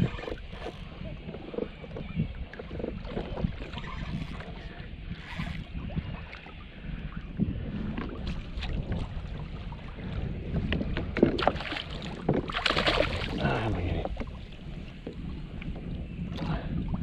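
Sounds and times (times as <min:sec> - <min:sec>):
water sounds: 0:00.0 - 0:17.0
wind rumbling on microphone: 0:00.0 - 0:17.0
water splash: 0:11.4 - 0:13.6.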